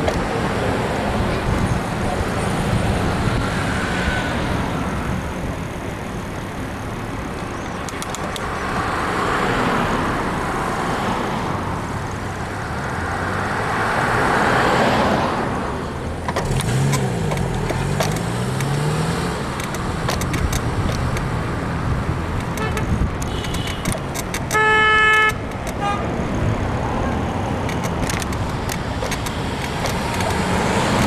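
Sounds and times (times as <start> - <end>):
vehicles passing: 0.0 - 31.0
bicycle frame creaking clicks: 7.6 - 8.7, 16.3 - 21.3, 22.4 - 25.8, 27.6 - 31.0.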